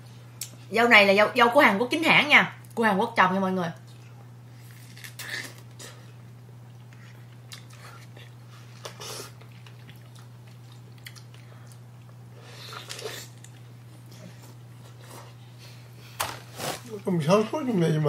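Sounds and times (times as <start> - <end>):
wet chewing sounds: 6.6 - 15.4.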